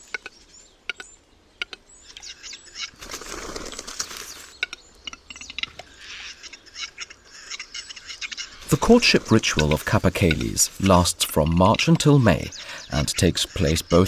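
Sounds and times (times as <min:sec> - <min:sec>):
bird wings flapping: 0:02.8 - 0:04.5.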